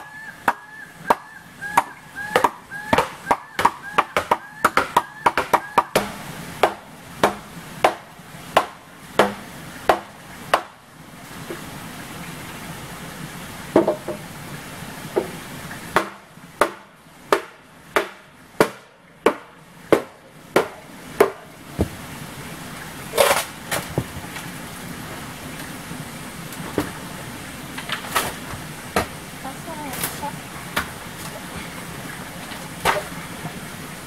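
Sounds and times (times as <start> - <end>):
tool striking wood: 0.5 - 10.7, 16.0 - 22.0
scattered knocks: 1.8 - 8.0.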